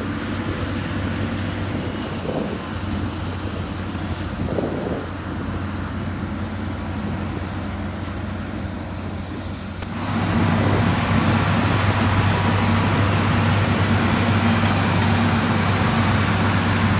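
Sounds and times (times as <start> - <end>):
heavy diesel engine running: 0.0 - 16.9.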